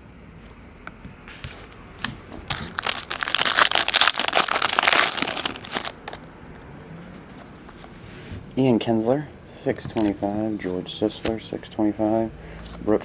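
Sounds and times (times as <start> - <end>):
wrapper tearing and crinkling: 2.5 - 6.2.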